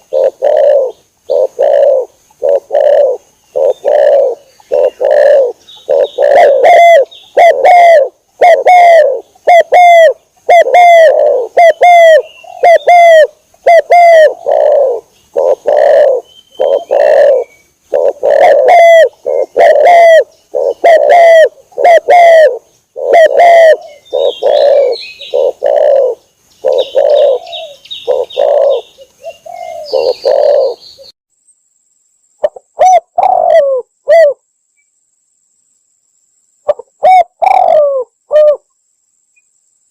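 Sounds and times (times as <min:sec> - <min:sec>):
dove cooing: 0:00.0 - 0:31.1, 0:32.4 - 0:34.4, 0:36.7 - 0:38.7
small birds chirping: 0:00.0 - 0:31.2.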